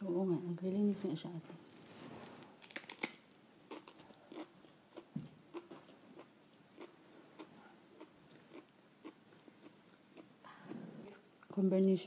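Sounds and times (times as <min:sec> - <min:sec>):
chewing raw cabbage: 0:02.6 - 0:11.6.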